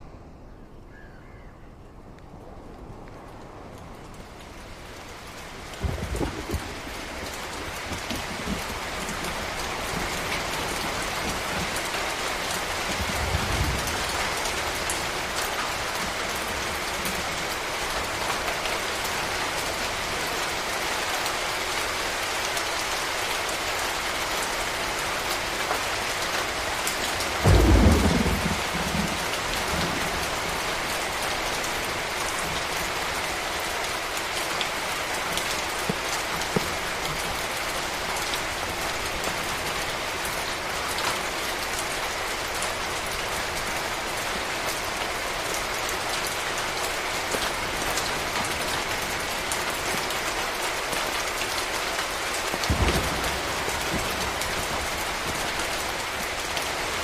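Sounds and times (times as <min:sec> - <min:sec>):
low thunder rumbles: 0:00.0 - 0:19.7, 0:26.0 - 0:33.7, 0:52.5 - 0:57.0
heavy rain hissing: 0:02.4 - 0:57.0.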